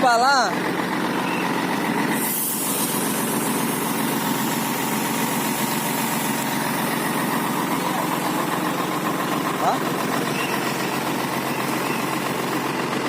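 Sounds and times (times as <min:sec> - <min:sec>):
diesel truck engine idling: 0:00.0 - 0:13.0
short hiss: 0:02.1 - 0:05.0.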